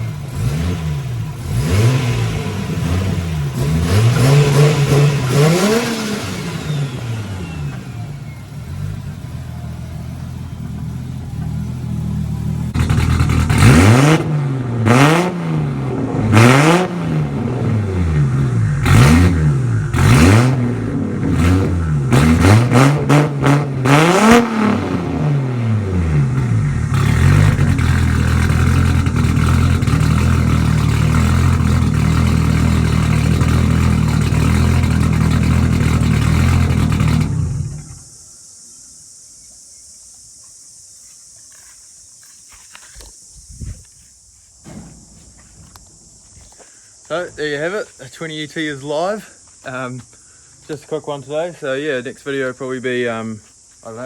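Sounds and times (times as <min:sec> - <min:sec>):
car engine idling and revving: 0:00.0 - 0:38.2.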